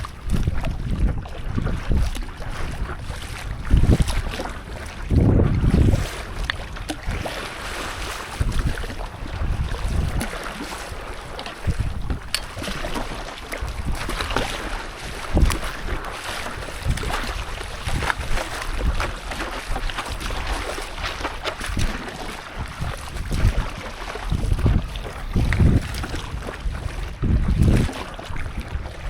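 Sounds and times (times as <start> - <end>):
water sloshing and splashing: 0.0 - 29.0
wind buffeting microphone: 0.0 - 29.0.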